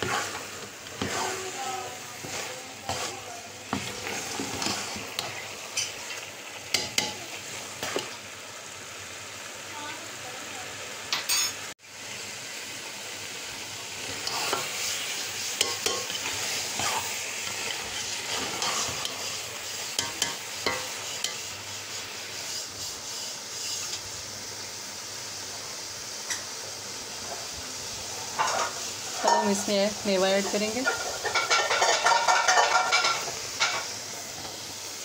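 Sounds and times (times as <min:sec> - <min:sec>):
spatula stirring and scraping: 0:00.0 - 0:08.2, 0:14.0 - 0:24.0, 0:28.4 - 0:33.9
food sizzling in a pot: 0:00.0 - 0:35.0.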